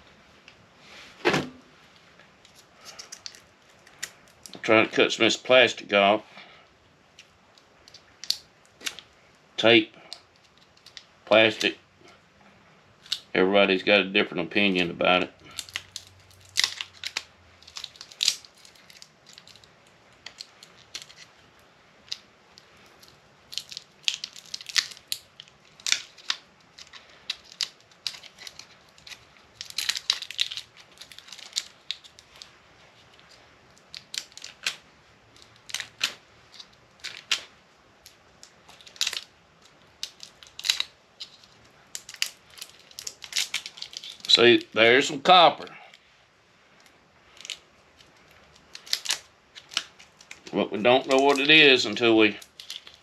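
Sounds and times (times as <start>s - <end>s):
knife cutting plastic and tape: 22.1s - 32.5s, 48.6s - 53.0s.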